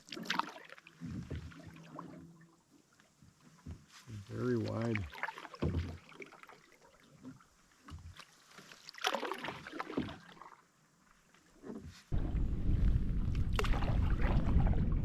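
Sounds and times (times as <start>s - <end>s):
canoe paddle splashing: 0.0s - 15.0s
wind buffeting microphone: 12.1s - 15.0s.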